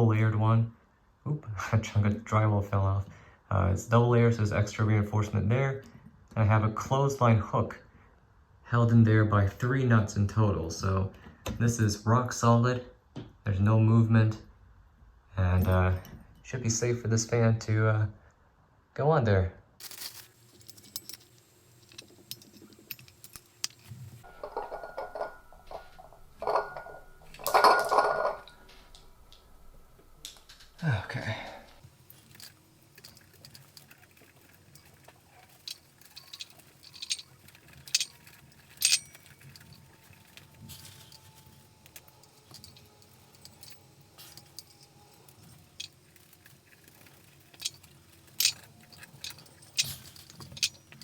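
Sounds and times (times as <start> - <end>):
metal parts clinking and scraping: 19.8 - 29.0, 31.8 - 51.0.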